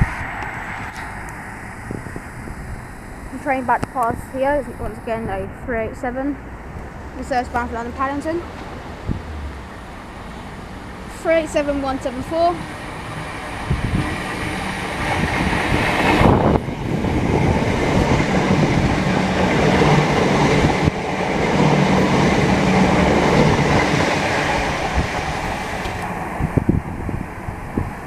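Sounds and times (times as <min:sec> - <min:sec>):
low hum of train: 0:00.0 - 0:28.0
train wheels rumbling on rail: 0:00.0 - 0:28.0
short clicks of train wheels: 0:17.6 - 0:26.3.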